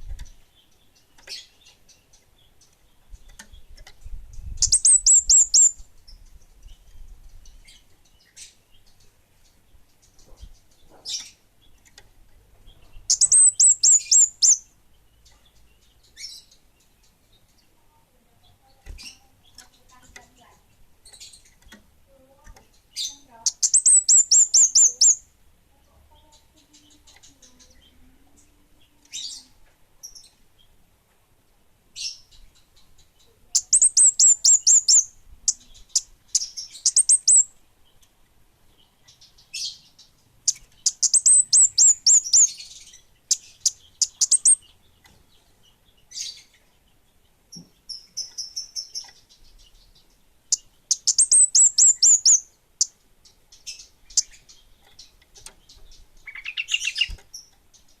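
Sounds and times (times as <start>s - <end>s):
songbird singing: 0.0s - 58.0s
bird chips: 12.7s - 14.7s, 22.4s - 25.2s, 32.6s - 37.5s, 39.1s - 45.2s, 50.5s - 58.0s.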